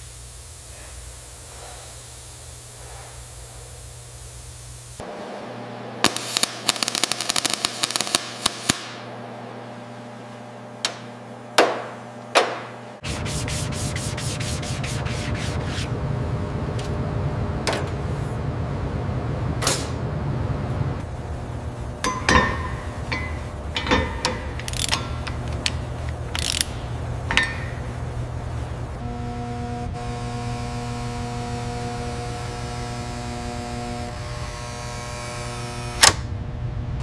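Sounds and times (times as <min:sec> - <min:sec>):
sanding noise: 0:13.0 - 0:15.9
fast ratchet clicks: 0:24.5 - 0:26.8.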